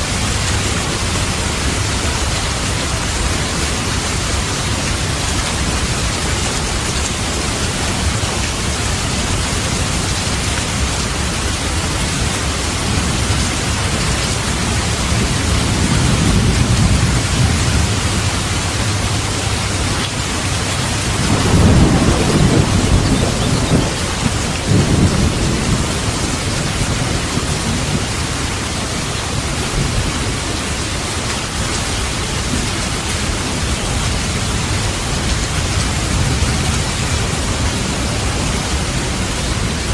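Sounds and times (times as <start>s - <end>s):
steady rain: 0.0s - 39.9s
rolling thunder: 14.6s - 19.9s, 20.6s - 28.3s.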